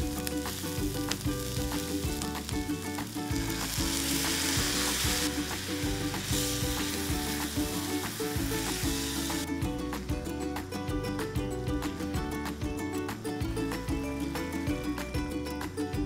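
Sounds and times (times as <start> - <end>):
vegetables sizzling in a skillet: 0.0 - 9.4
background music with steady beat: 0.0 - 16.0.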